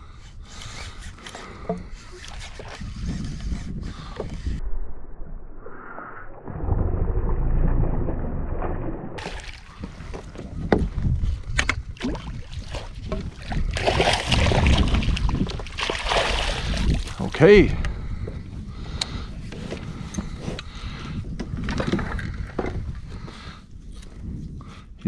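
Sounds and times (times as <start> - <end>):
wind buffeting microphone: 0.0 - 4.8, 6.5 - 25.0
water sloshing around kayak: 7.9 - 17.4.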